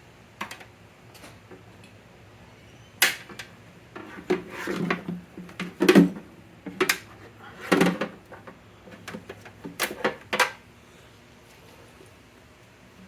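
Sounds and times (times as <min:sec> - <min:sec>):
knocks and rubbing of parts: 0:03.0 - 0:10.6.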